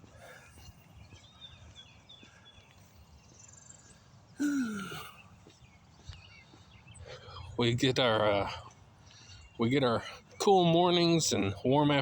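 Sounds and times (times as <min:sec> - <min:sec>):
small birds chirping: 0:00.0 - 0:12.0
man sighing: 0:04.4 - 0:05.2.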